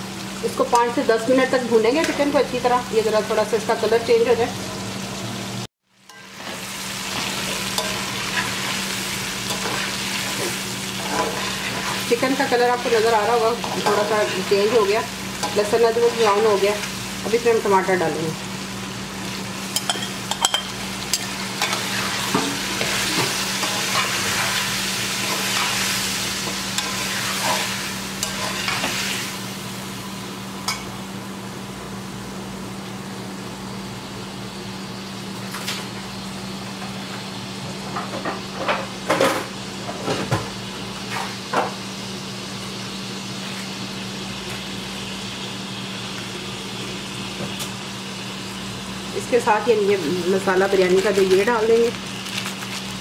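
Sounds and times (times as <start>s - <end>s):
chicken frying in oil: 0.0s - 30.4s, 40.3s - 53.0s
spatula scraping pan: 6.1s - 16.9s, 19.8s - 29.3s.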